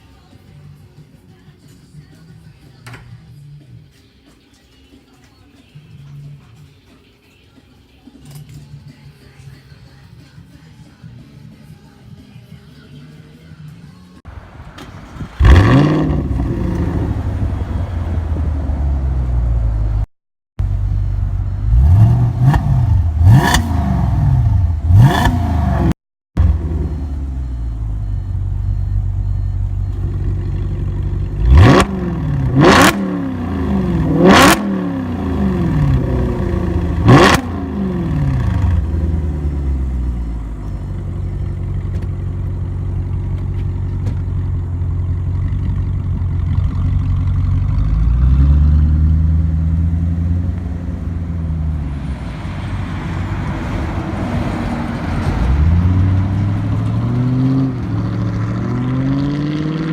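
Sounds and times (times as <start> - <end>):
car engine idling and revving: 14.3 - 59.9.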